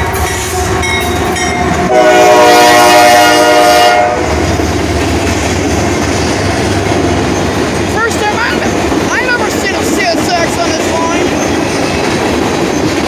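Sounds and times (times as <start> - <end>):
train rumbling on rails: 0.0 - 13.0
train air horn blast: 1.9 - 4.4.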